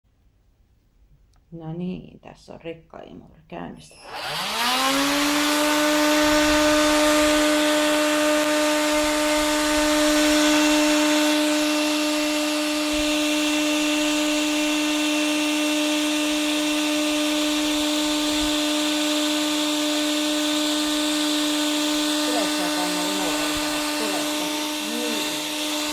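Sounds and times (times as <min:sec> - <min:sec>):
vacuum cleaner motor whine: 0:03.9 - 0:25.9.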